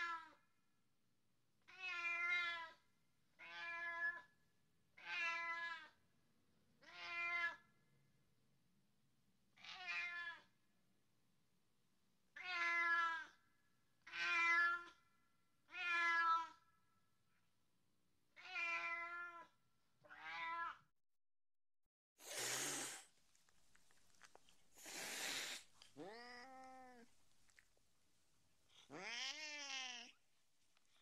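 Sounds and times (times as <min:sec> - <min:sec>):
cat meowing: 0:01.7 - 0:02.8, 0:05.0 - 0:06.0, 0:06.8 - 0:07.6, 0:09.6 - 0:10.5, 0:12.4 - 0:13.4, 0:14.0 - 0:15.0, 0:15.7 - 0:16.6, 0:18.4 - 0:20.9, 0:25.4 - 0:27.1, 0:28.8 - 0:30.2.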